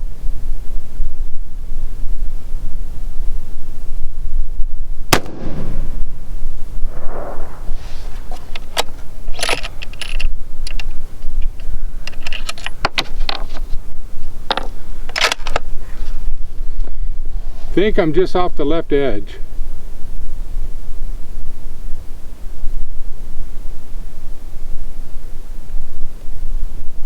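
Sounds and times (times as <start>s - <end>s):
wind rumble on microphone: 0.0s - 27.0s
rifle shot: 5.1s - 6.2s, 6.8s - 7.8s.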